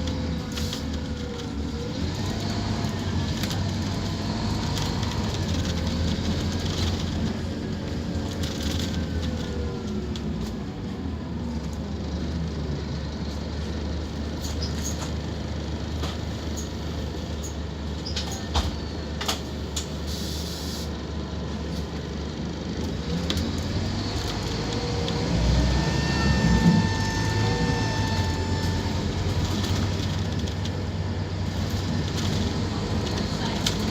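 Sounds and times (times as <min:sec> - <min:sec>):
bus engine running: 0:00.0 - 0:33.9
whine: 0:24.0 - 0:29.8.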